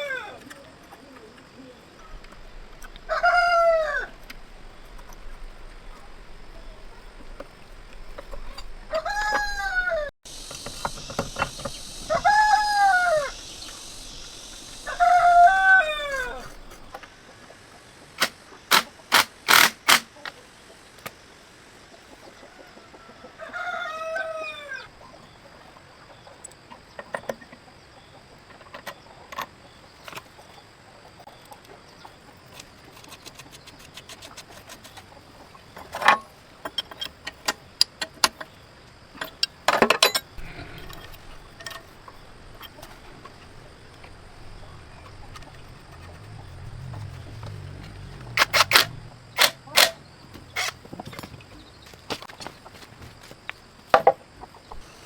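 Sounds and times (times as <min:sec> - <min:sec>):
rooster crowing: 0:03.0 - 0:04.3, 0:08.9 - 0:10.1, 0:12.0 - 0:16.8, 0:22.4 - 0:24.9
chickens clucking: 0:08.2 - 0:19.1, 0:21.8 - 0:36.5, 0:40.3 - 0:53.4, 0:54.0 - 0:55.0.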